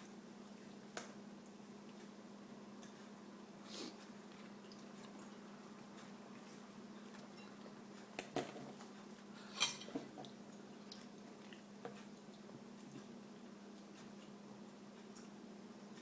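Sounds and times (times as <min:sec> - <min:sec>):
tableware clinking: 0:09.4 - 0:10.1.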